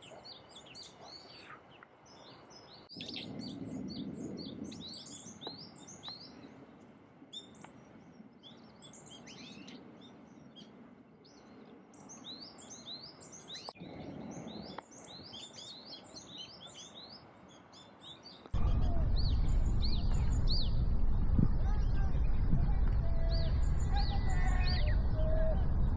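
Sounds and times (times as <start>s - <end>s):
songbirds chirping: 0.0s - 25.9s
loud low rumble: 18.6s - 25.9s.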